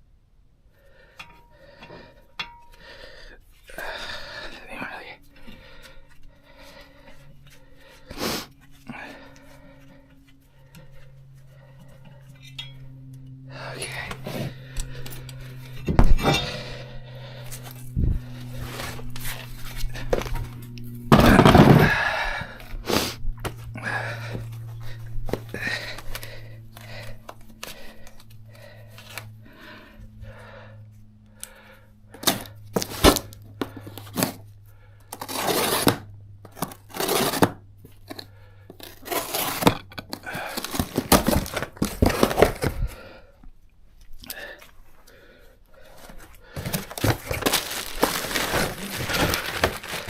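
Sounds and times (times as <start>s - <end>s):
low hum: 0.0s - 50.0s
tools knocking and scraping metal: 1.2s - 2.8s, 12.0s - 13.3s.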